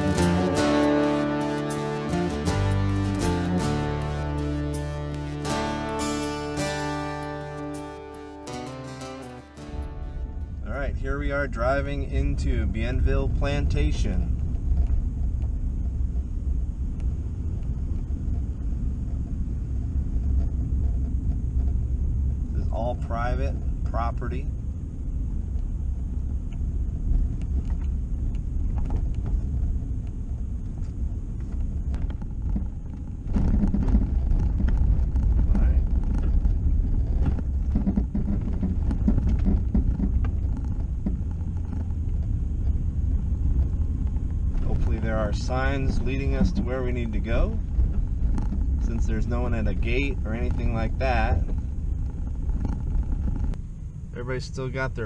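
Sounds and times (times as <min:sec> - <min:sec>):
car road and engine rumble: 0:00.0 - 0:55.0
light knocks and rattles: 0:31.4 - 0:46.7.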